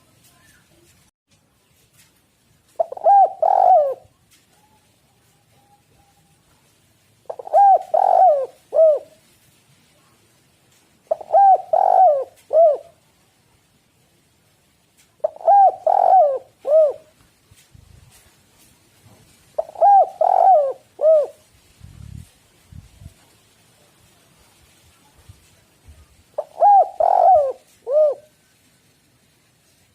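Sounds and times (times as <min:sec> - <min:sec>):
dove cooing: 0:02.8 - 0:04.8, 0:07.3 - 0:09.2, 0:11.1 - 0:13.0, 0:15.2 - 0:17.1, 0:19.6 - 0:21.4, 0:26.4 - 0:28.4.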